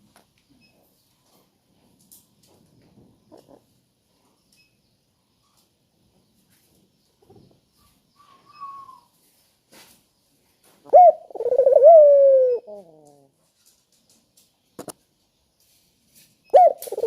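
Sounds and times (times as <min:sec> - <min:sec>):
dove cooing: 0:10.9 - 0:13.4, 0:16.5 - 0:17.0.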